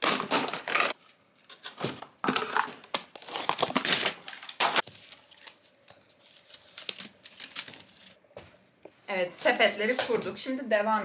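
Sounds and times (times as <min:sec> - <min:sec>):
cardboard and wicker crinkling: 0:02.4 - 0:08.2.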